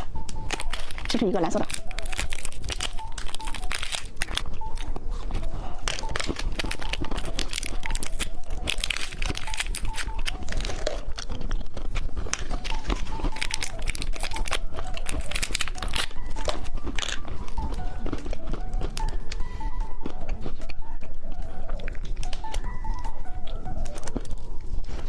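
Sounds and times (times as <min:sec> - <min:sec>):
plastic wrapper crinkling: 0:00.3 - 0:19.4.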